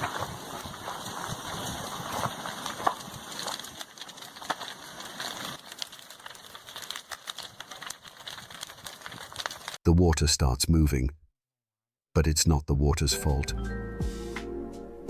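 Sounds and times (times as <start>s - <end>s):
lava crackling with clicks and snaps: 0.0s - 9.8s.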